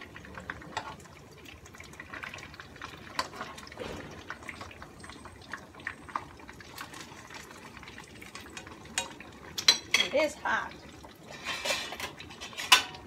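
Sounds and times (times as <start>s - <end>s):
food frying in hot oil: 0.0s - 13.0s.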